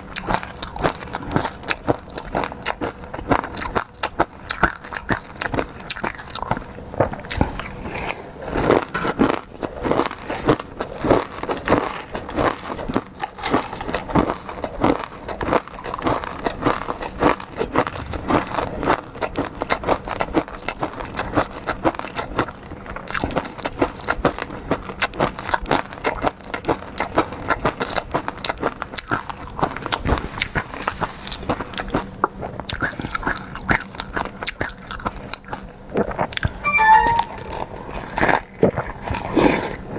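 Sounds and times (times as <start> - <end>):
wet chewing and biting: 0.0 - 36.6.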